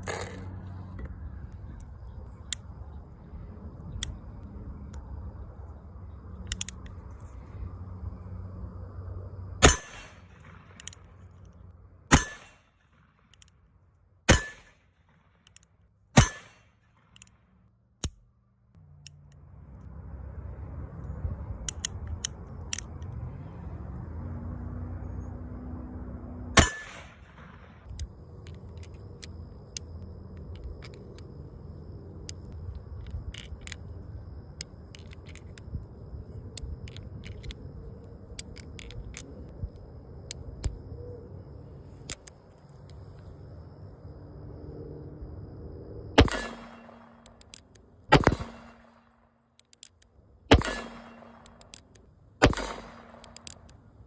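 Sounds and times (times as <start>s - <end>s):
rumbling handling noise: 0.0s - 7.7s, 26.6s - 43.8s
handgun shots: 14.3s - 14.7s, 16.2s - 16.6s, 46.2s - 47.0s, 48.1s - 48.8s, 50.5s - 51.6s, 52.4s - 53.5s.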